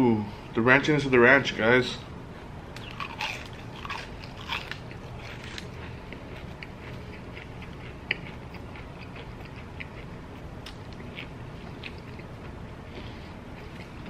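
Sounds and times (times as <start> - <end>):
person chewing food: 2.8 - 14.0.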